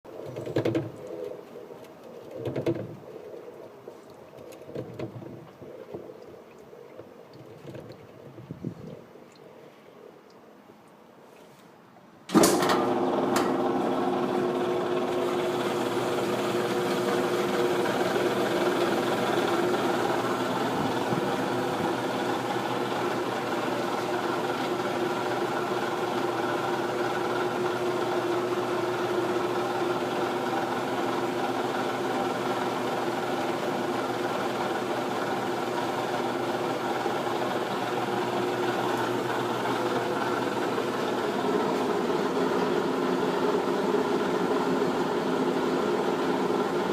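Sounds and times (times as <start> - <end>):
washing machine spinning hum: 12.3 - 46.9.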